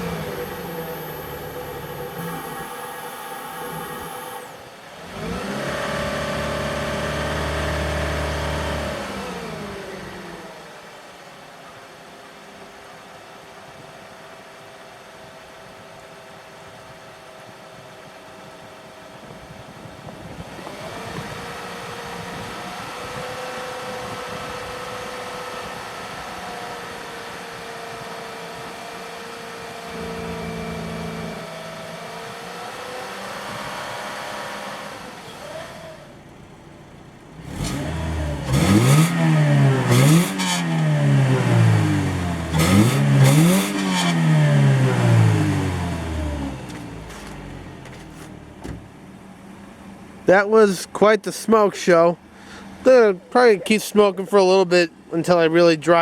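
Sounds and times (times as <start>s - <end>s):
car engine revving: 0.0s - 10.5s, 20.4s - 50.4s.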